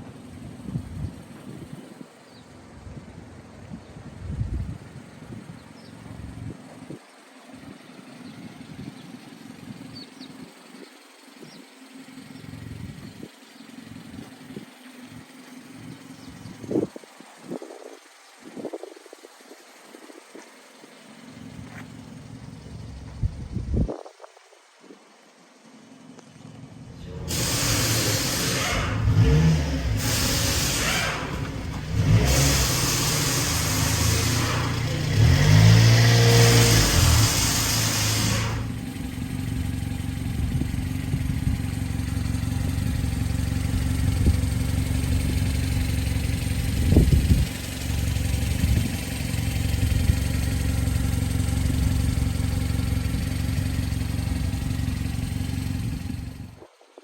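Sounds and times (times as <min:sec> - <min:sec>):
small truck engine revving and idling: 0:00.0 - 0:24.0, 0:25.4 - 0:56.7.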